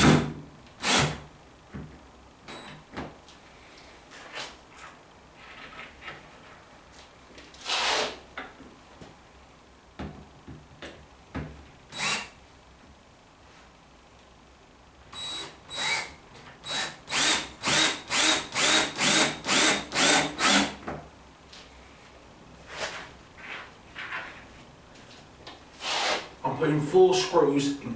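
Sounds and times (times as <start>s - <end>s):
power drill driving screws into wood: 0.0s - 1.2s, 7.7s - 8.2s, 11.9s - 12.4s, 15.2s - 20.8s, 25.8s - 26.3s.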